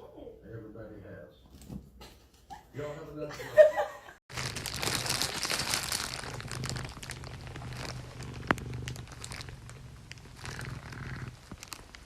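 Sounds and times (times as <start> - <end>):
crackly rustling: 4.3 - 12.0
cat purring: 4.7 - 12.0.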